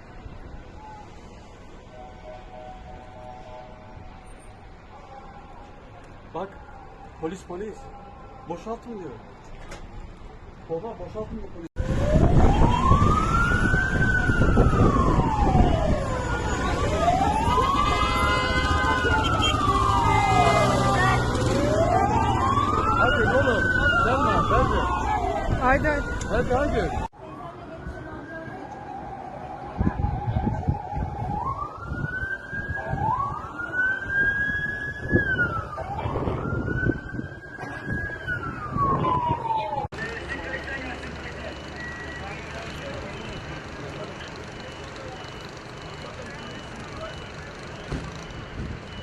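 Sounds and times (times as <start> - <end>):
wailing siren: 11.8 - 49.0.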